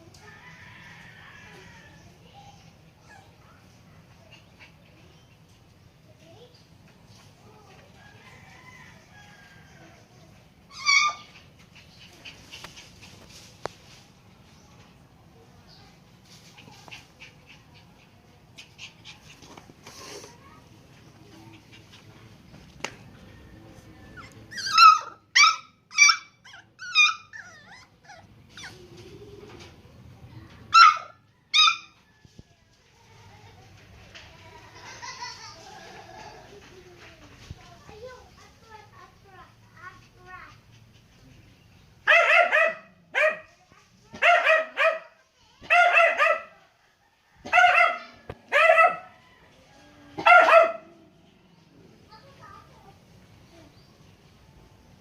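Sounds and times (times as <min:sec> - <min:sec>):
puppy yipping and barking: 0:10.7 - 0:11.4, 0:24.2 - 0:28.8, 0:30.7 - 0:32.0, 0:42.1 - 0:43.5, 0:47.5 - 0:49.1, 0:50.2 - 0:50.8.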